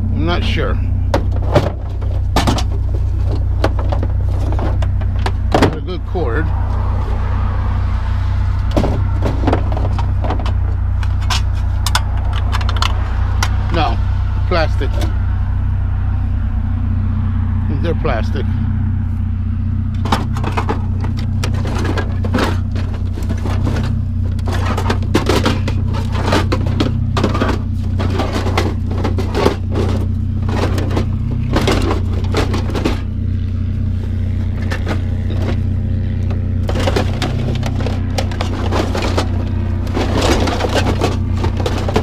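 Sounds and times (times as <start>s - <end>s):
vehicle engine idling: 0.0s - 42.0s
scrap parts clattering: 0.4s - 6.4s, 8.7s - 13.0s, 20.0s - 42.0s.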